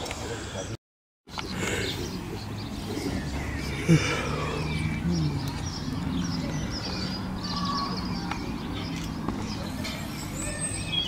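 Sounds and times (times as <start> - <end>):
birds chirping: 0.0 - 11.0
distant voices murmuring: 0.0 - 11.0.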